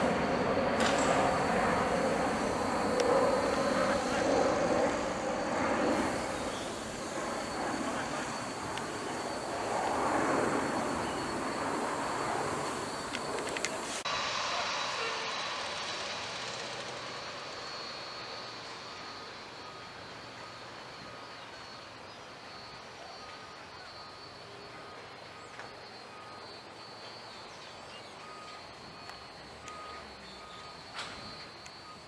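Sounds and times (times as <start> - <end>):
high-pitched whine: 0.0 - 20.3
jet engines roaring: 0.0 - 20.3.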